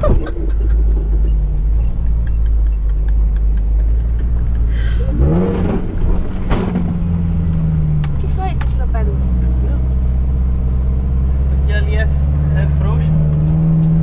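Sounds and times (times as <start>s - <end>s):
car engine droning and revving: 0.0s - 14.0s
car knocking over sand: 5.4s - 7.2s.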